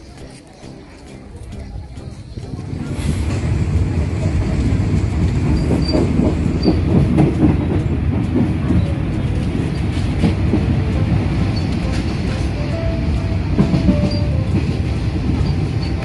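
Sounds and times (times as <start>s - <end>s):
train carriage rumbling on rails: 0.0s - 16.0s
wheels clattering and knocking: 2.1s - 12.2s.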